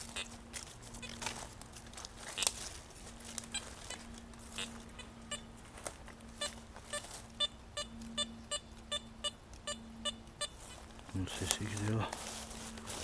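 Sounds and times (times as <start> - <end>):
faint steady hum: 0.0 - 13.0
metal detector beeps: 4.6 - 5.5, 6.4 - 10.7.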